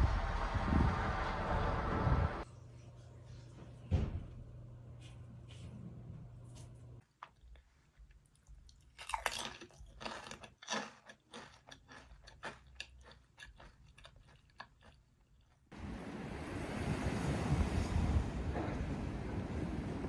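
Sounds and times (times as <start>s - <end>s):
wind noise: 0.0s - 2.4s, 15.8s - 20.0s
person chewing crunchy food: 7.0s - 15.7s.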